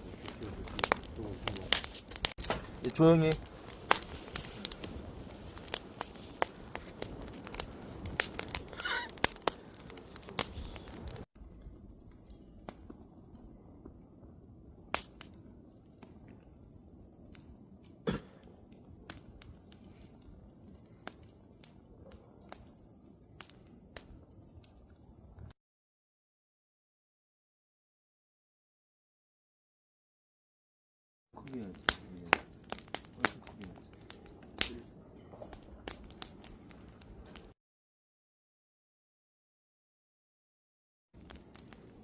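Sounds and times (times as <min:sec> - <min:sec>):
wood fire crackling and popping: 0:00.0 - 0:25.5, 0:31.4 - 0:37.6, 0:41.2 - 0:42.0.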